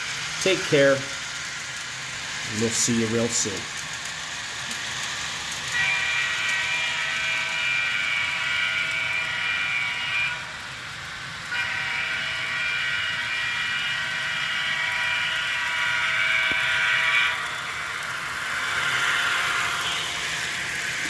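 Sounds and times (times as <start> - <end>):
model train running sound: 0.0 - 21.0
model locomotive horn chord: 5.7 - 10.5, 11.5 - 17.4.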